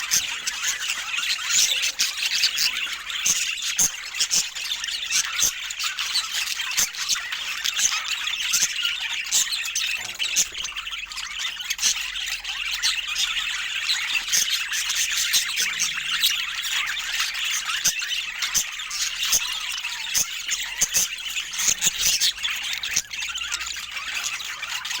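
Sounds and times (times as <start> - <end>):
budgerigars chattering: 0.0 - 25.0.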